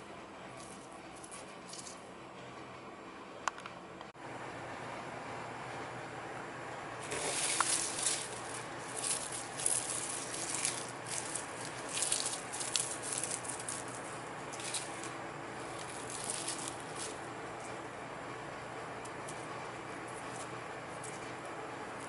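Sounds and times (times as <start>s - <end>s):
fan humming: 0.0s - 22.0s
dried cabbage crackling: 7.0s - 18.2s.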